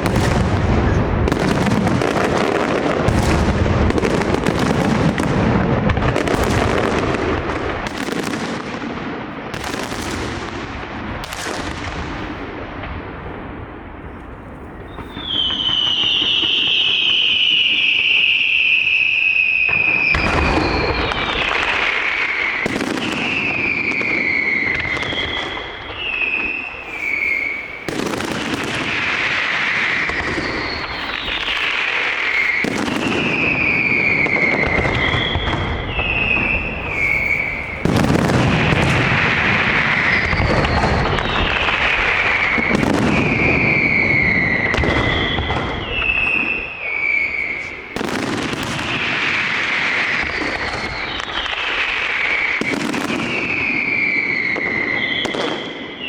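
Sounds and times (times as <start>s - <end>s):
fireworks whistling: 0.0s - 12.9s, 13.5s - 56.0s
fireworks crackling: 0.0s - 56.0s
fireworks heavy bangs: 0.0s - 56.0s.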